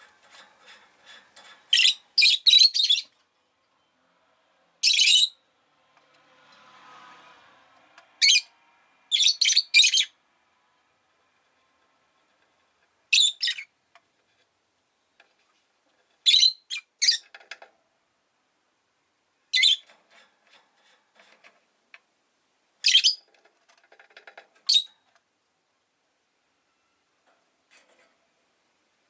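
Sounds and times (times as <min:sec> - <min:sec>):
faint soft bird chatter: 0:00.0 - 0:05.4, 0:14.8 - 0:17.6, 0:22.8 - 0:25.2
bird shrill chirps: 0:04.8 - 0:05.4, 0:09.1 - 0:10.1, 0:13.1 - 0:13.7, 0:16.3 - 0:17.2, 0:22.9 - 0:23.2.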